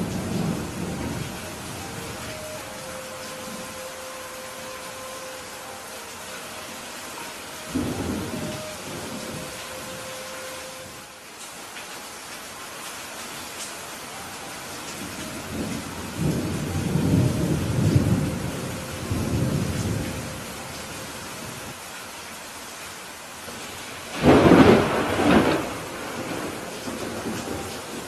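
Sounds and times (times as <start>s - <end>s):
steady rain: 0.0s - 28.0s
sharp thunderclap: 24.1s - 27.6s
thunder rolling: 24.1s - 28.0s.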